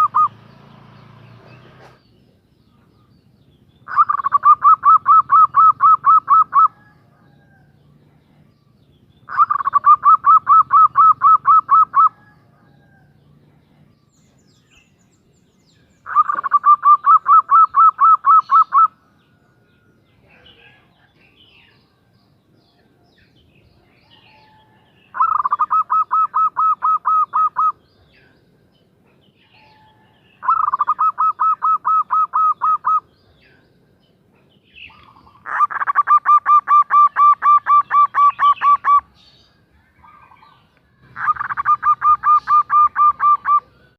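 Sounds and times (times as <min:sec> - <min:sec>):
dove cooing rapidly: 0:00.0 - 0:00.4, 0:03.8 - 0:07.7, 0:09.3 - 0:13.0, 0:16.0 - 0:19.0, 0:24.2 - 0:27.9, 0:29.6 - 0:33.2, 0:34.8 - 0:39.2, 0:40.0 - 0:43.9.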